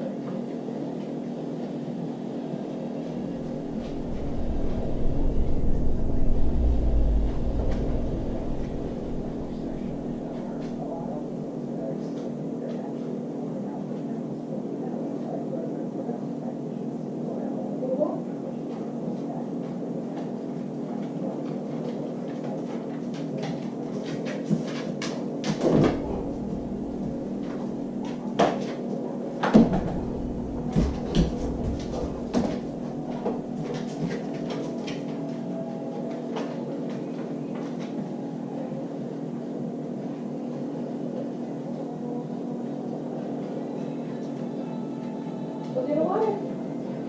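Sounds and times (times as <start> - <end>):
steady low hum: 1.9 - 20.2, 25.3 - 47.0
heavy thump: 3.4 - 11.0, 29.5 - 33.5.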